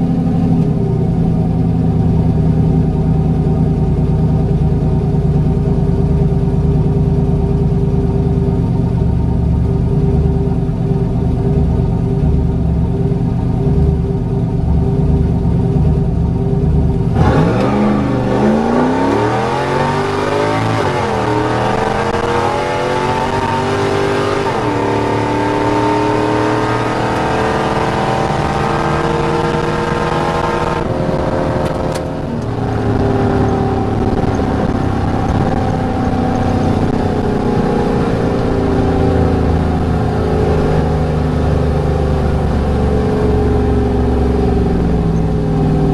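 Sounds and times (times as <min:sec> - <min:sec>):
pickup truck engine revving: 0:10.6 - 0:45.9.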